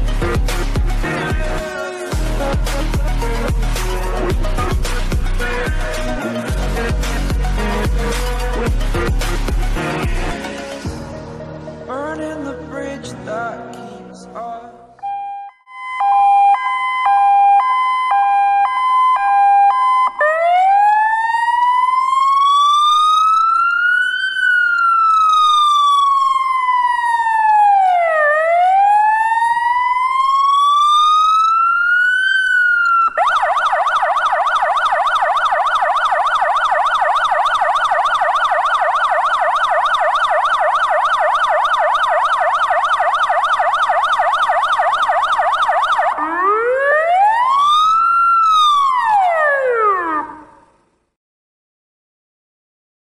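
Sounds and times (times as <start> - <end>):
siren fast yelp: 15.0 - 50.6
siren wailing: 15.0 - 50.8.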